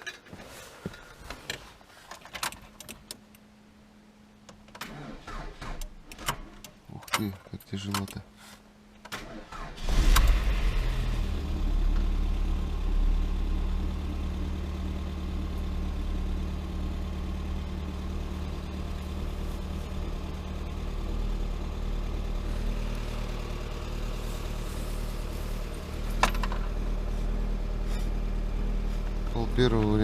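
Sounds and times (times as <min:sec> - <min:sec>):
car engine starting and idling: 0:00.6 - 0:30.0.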